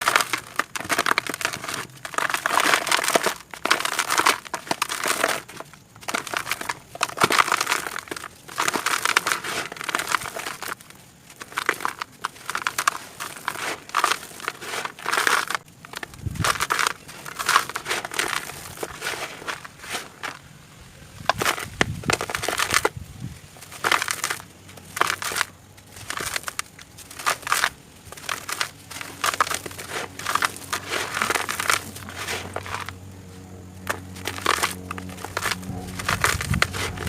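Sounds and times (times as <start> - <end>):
crinkling and crunching: 0.0 - 37.0.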